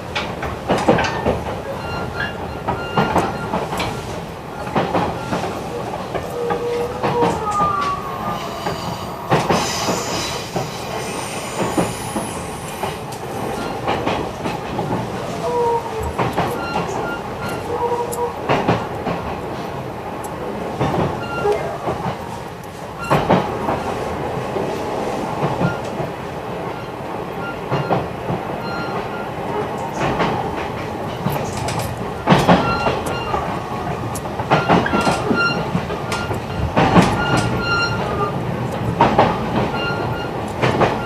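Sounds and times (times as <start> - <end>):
electric train running rumble: 0.0 - 41.0
wheel squeals: 0.9 - 13.9, 15.3 - 18.4, 21.2 - 22.2, 23.0 - 23.4, 31.1 - 38.4, 39.0 - 41.0
sharp rail clicks: 27.5 - 41.0.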